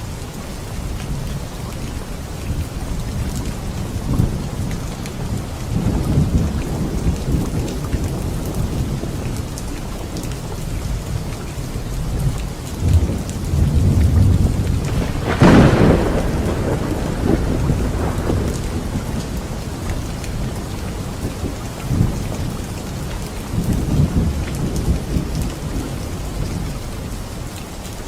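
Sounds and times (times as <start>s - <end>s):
rain pattering: 0.0s - 28.0s
thunder rumbling: 12.0s - 27.1s
sharp thunderclap: 12.8s - 20.6s.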